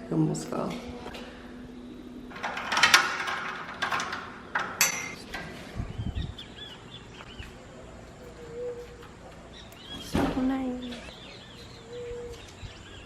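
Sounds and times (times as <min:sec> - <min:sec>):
small birds chirping: 0:05.6 - 0:13.0.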